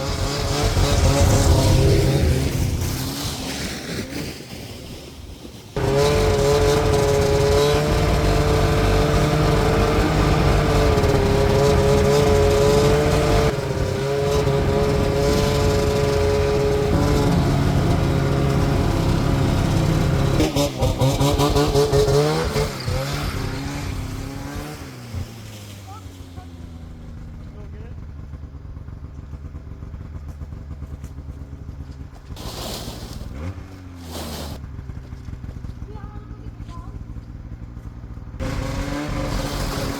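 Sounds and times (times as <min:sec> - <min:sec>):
two-stroke snowmobile engine running: 0:00.0 - 0:04.8, 0:05.4 - 0:39.9
loud rush of hiss: 0:32.4 - 0:33.4, 0:34.0 - 0:34.6.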